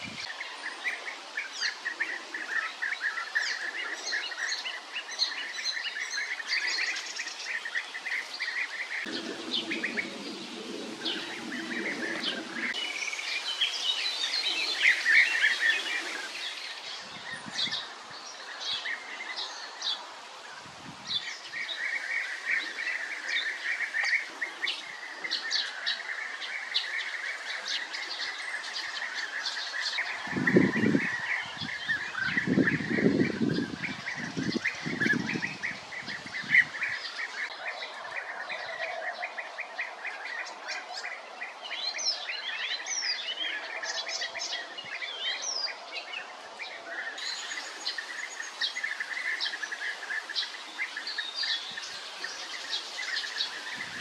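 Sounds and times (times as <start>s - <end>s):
birds rolling calls chorus: 0.0s - 54.0s
low drone: 9.0s - 12.8s.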